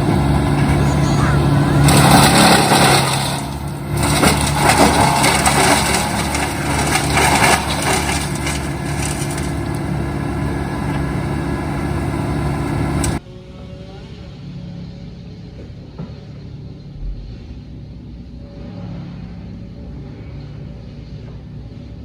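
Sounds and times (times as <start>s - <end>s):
wood chipper crunching branches: 0.0s - 13.2s
wood chipper engine hum: 0.0s - 13.2s.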